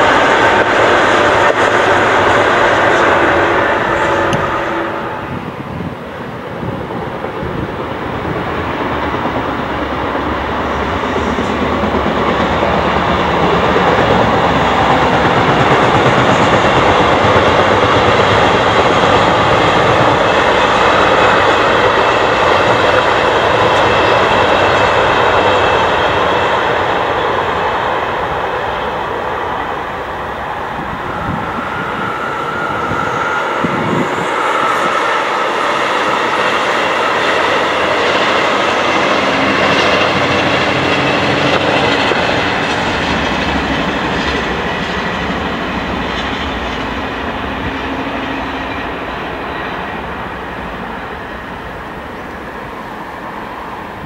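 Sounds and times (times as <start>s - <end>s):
train wheels rumbling on rail: 0.0s - 54.0s
thin steady whine: 26.8s - 38.0s.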